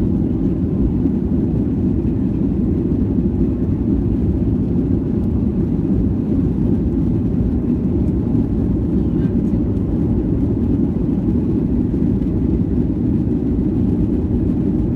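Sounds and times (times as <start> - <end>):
jet engines rumbling: 0.0 - 14.9.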